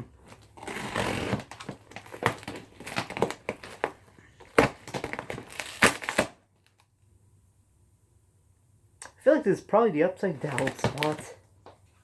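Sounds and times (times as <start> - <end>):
cardboard box cracking open: 0.3 - 6.4, 10.5 - 11.2.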